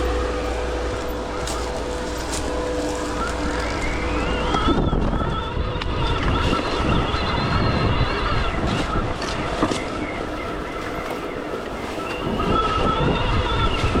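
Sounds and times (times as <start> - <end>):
electric motorbike motor whining: 0.0 - 14.0
low rumble: 0.0 - 14.0
wind noise on microphone: 0.0 - 14.0.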